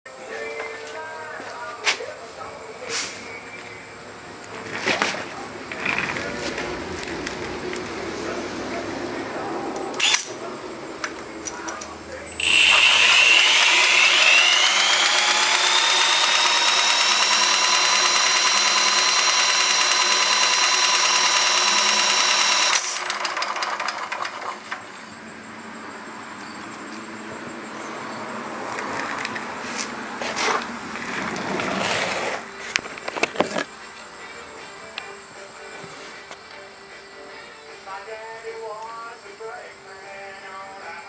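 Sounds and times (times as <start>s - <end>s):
quieter mechanical running: 11.5s - 25.3s
small motor whining: 12.4s - 23.9s.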